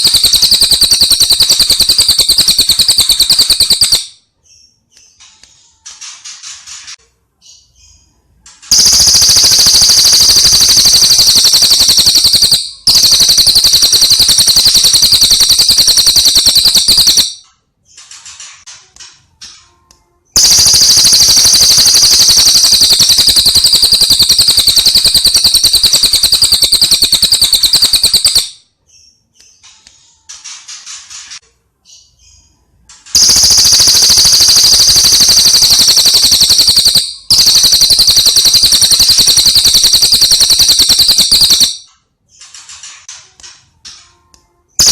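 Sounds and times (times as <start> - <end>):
rapid high-pitched bird trills: 0.0 - 6.8, 8.7 - 18.2, 20.4 - 29.7, 33.1 - 42.6.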